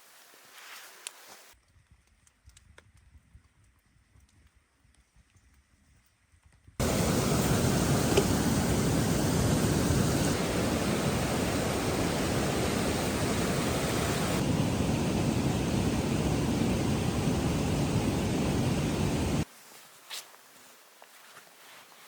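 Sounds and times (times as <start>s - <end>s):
storm wind on microphone: 6.8s - 19.4s.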